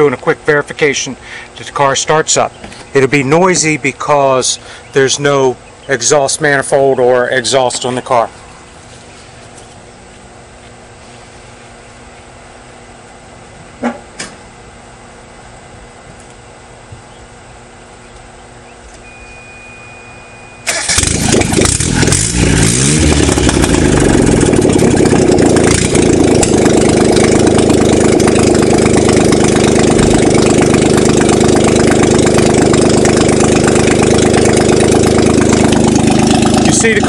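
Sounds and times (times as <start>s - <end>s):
car engine starting and idling: 20.4s - 37.0s.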